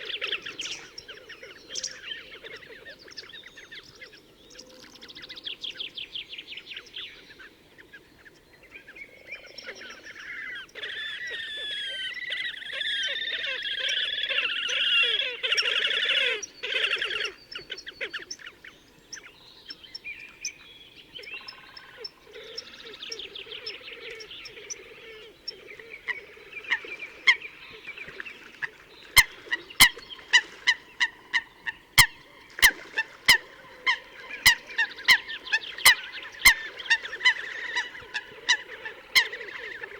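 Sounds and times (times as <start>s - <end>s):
grebes trilling calls: 21.8s - 39.9s.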